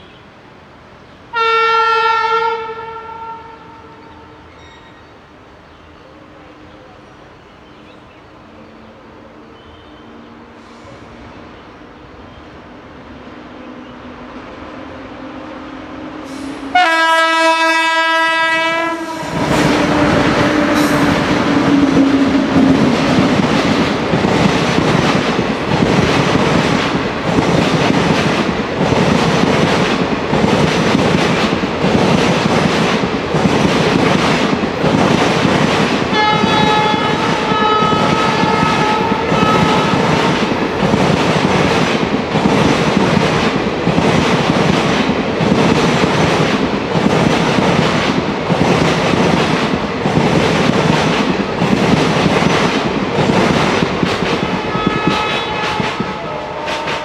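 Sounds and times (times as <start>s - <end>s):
locomotive horn: 1.3s - 4.8s, 16.2s - 23.2s, 36.1s - 40.3s, 54.4s - 57.0s
locomotive whine passing: 13.1s - 45.5s
rhythmic clatter of train wheels: 14.9s - 57.0s.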